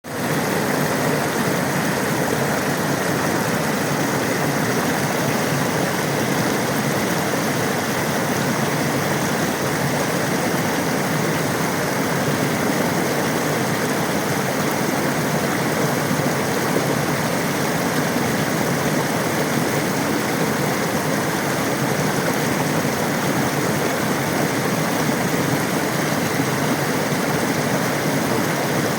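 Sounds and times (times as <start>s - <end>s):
rushing water: 0.0s - 28.9s.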